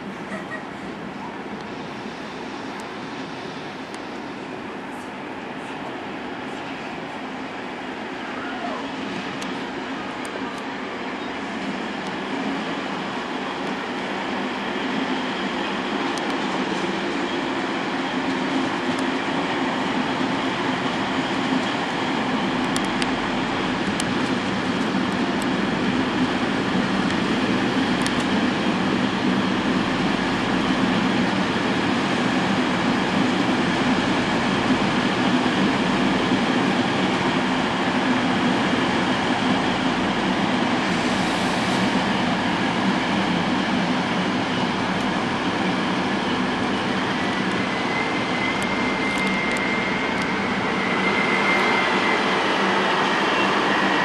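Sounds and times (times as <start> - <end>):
train wheels rumbling on track: 0.0 - 54.0
high squeal: 47.2 - 54.0.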